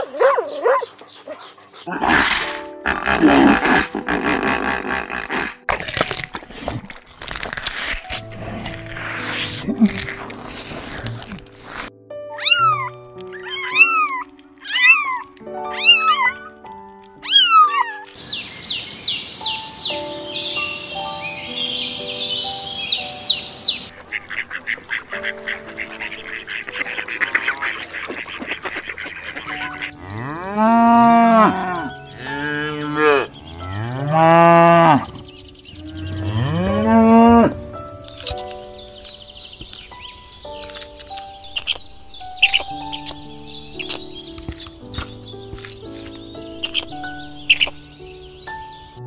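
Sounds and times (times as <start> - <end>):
cats meowing: 12.3 - 16.6, 17.2 - 18.2
cattle mooing: 30.0 - 35.2, 35.8 - 37.6.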